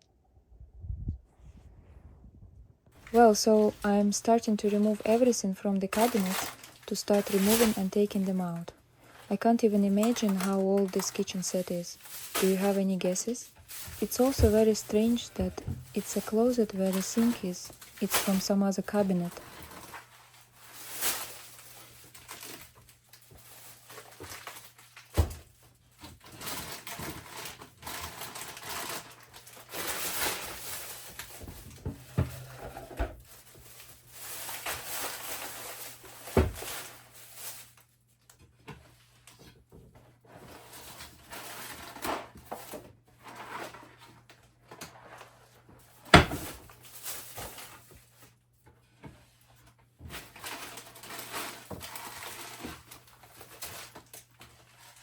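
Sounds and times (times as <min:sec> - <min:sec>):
rummaging in wooden cabinets: 0:03.0 - 0:37.8, 0:38.4 - 0:55.0
cabinet doors and drawers knocking: 0:31.5 - 0:33.2, 0:46.1 - 0:46.4.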